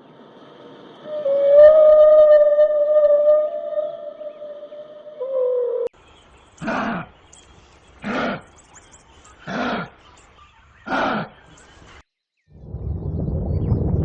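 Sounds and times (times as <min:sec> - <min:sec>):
faint bird chirps: 0:03.5 - 0:12.6
animal rough loud calls: 0:10.9 - 0:11.4.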